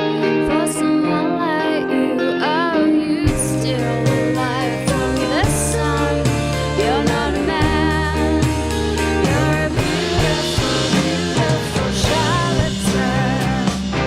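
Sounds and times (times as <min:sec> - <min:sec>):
woman singing: 0:00.0 - 0:13.9
live rock band playing: 0:00.0 - 0:14.0.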